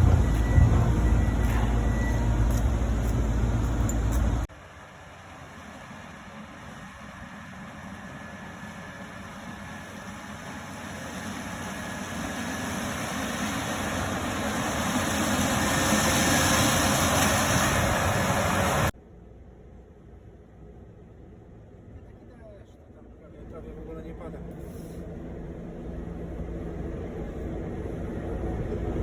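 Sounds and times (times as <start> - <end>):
combine harvester running: 0.0 - 22.2, 23.2 - 29.0.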